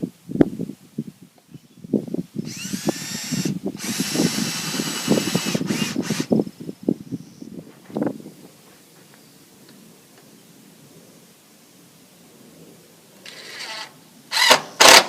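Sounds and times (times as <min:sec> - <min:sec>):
power drill driving screws: 0:02.5 - 0:06.4, 0:13.3 - 0:15.0.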